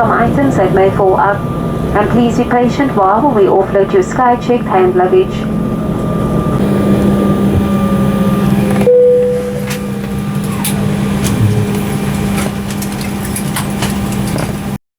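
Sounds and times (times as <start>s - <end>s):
aircraft cabin air system hum: 0.0s - 14.8s
falling whine: 5.4s - 13.4s.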